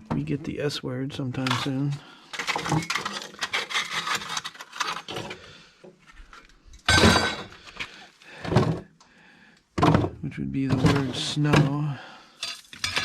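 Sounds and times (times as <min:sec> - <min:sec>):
scrap objects clinking: 0:01.4 - 0:05.4, 0:12.4 - 0:13.0.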